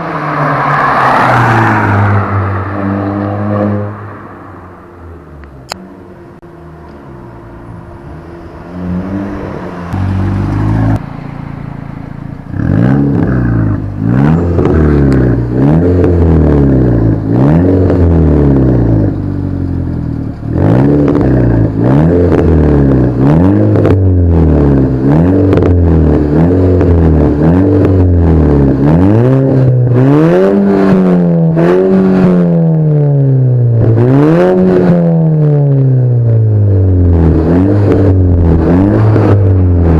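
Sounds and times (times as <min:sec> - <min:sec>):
car engine revving: 0:00.0 - 0:39.9
exhaust cracks: 0:09.0 - 0:32.5, 0:36.2 - 0:39.9.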